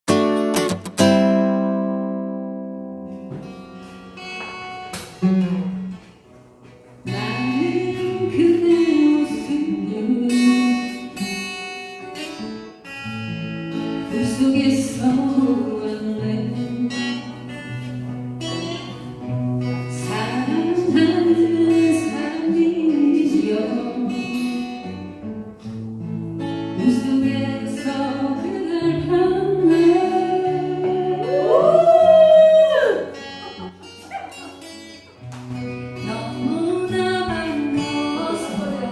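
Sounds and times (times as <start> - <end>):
acoustic guitar strumming chords: 0.1 - 31.7, 32.7 - 38.9
person singing: 26.9 - 33.8, 36.0 - 38.9.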